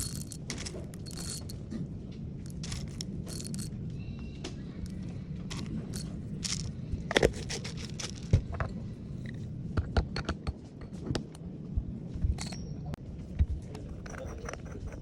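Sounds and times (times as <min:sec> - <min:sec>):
coffee gear clicking and tapping: 0:00.0 - 0:01.7, 0:02.4 - 0:03.7, 0:04.8 - 0:08.7, 0:13.7 - 0:15.0
low hum: 0:00.0 - 0:15.0.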